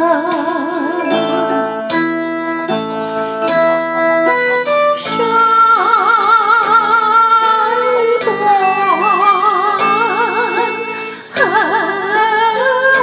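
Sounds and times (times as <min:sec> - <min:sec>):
sustained wavering melody: 0:00.0 - 0:05.9
plucked string melody: 0:00.0 - 0:13.0.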